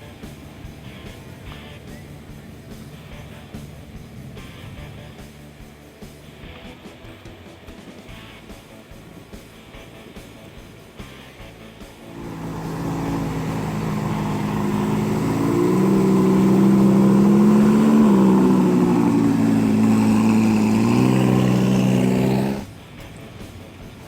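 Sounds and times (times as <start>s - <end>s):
car engine running loudly: 0.0s - 5.5s, 12.0s - 24.0s.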